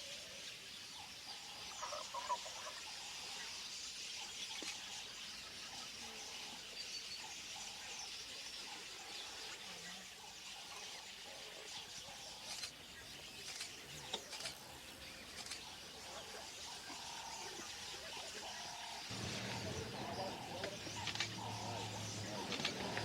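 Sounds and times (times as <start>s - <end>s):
wild birds calling: 0.0s - 23.0s
loud bird chirps: 11.8s - 23.0s.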